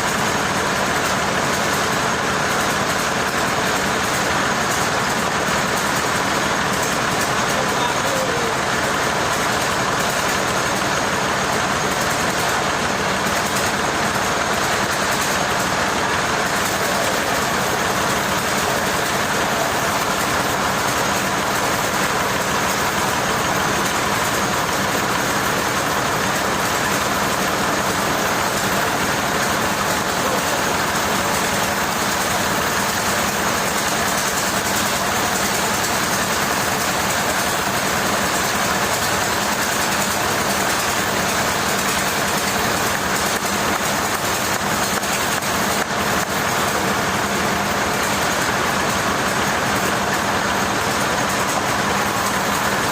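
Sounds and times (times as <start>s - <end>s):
machine engine running: 0.0s - 52.9s.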